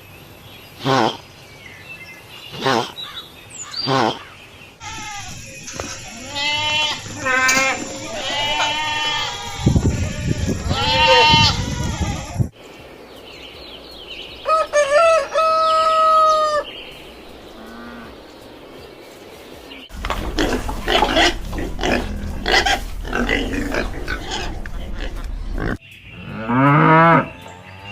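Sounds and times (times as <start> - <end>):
pigs grunting and squealing: 2.5 - 3.0, 3.8 - 12.4, 19.9 - 27.4
wavering bleats: 4.8 - 12.5, 20.0 - 25.8
rooster crowing: 14.5 - 16.7.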